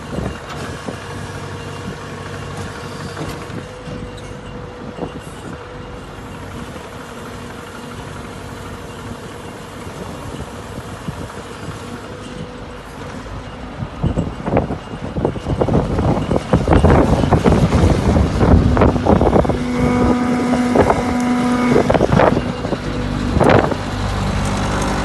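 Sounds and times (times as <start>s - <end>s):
engine idling hum: 15.1s - 25.0s.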